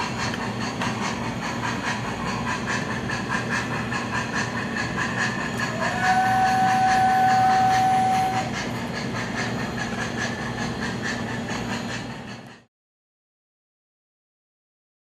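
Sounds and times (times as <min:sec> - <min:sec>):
model steam engine chuffing and hiss: 0:00.0 - 0:12.7
train whistle blast: 0:05.6 - 0:08.6.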